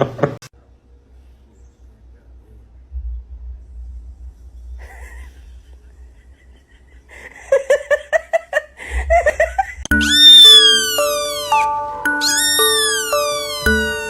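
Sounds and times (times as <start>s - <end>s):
low rumble: 2.7s - 7.2s, 8.8s - 9.9s
person laughing: 4.8s - 10.8s.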